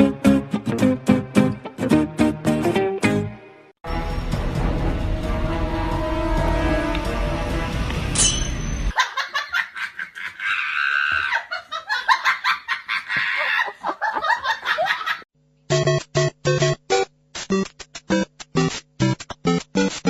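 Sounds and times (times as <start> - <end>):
background music: 0.0 - 8.9
choppy bursts of laughter: 9.0 - 15.3.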